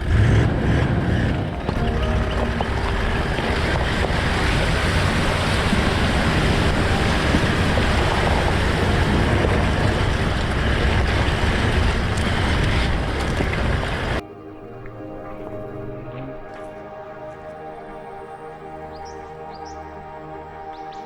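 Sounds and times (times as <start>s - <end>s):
vehicle driving on dirt road: 0.0s - 14.2s.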